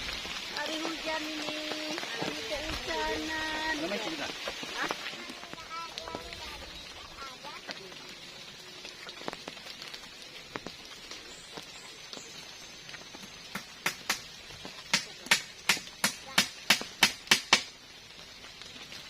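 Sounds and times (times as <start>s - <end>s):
rain hissing: 0.0s - 19.0s
sharp knocks: 14.9s - 17.7s.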